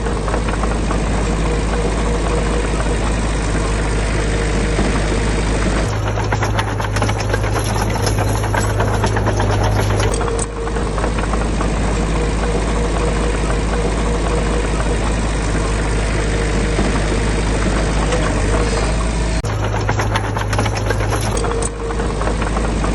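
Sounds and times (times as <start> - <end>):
heavy diesel engine clattering: 0.0 - 22.9.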